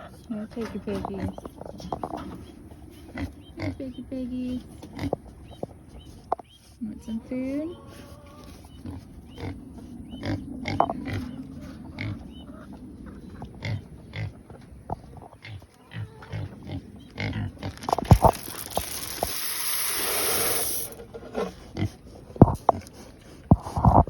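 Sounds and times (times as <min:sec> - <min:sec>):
pigs grunting: 0:01.0 - 0:04.0, 0:04.8 - 0:05.3, 0:07.7 - 0:14.6, 0:15.2 - 0:19.0, 0:21.4 - 0:24.0
loud sharp sounds: 0:17.9 - 0:21.0
steady rushing hiss: 0:17.9 - 0:21.0.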